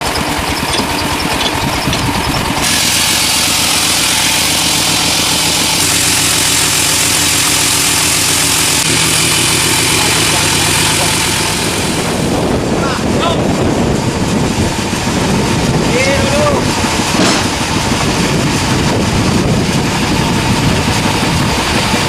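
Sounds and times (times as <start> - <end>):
sawmill machinery running: 0.0 - 22.0
hiss-like machine noise: 0.1 - 12.4.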